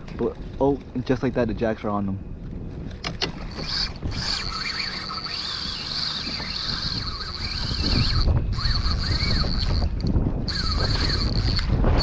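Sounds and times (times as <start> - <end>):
wind buffeting microphone: 0.0 - 12.0
fishing reel drag whining: 3.4 - 12.0.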